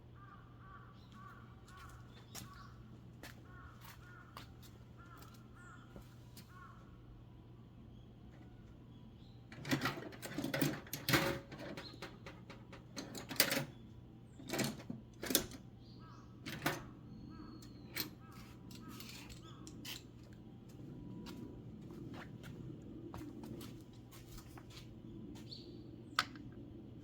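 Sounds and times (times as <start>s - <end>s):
tools clicking and clattering: 9.5s - 13.7s, 14.4s - 15.6s, 16.4s - 16.9s, 17.7s - 20.2s.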